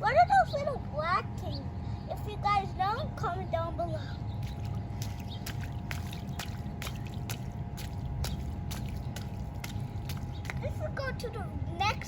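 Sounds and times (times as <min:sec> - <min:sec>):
footsteps in puddle: 0:04.4 - 0:10.8.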